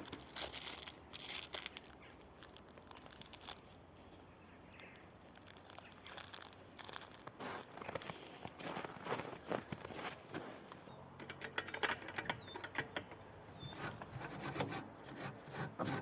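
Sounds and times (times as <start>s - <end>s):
packaging crinkling and rustling: 0.0s - 3.8s, 4.8s - 10.7s.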